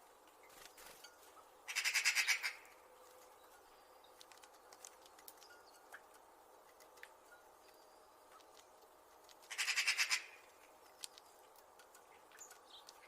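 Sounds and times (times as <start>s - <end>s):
low steady hiss: 0.0s - 13.0s
magpie rattling chatter: 1.7s - 2.6s, 9.5s - 10.4s
faint clicks and ticks: 3.1s - 9.6s, 10.4s - 13.0s.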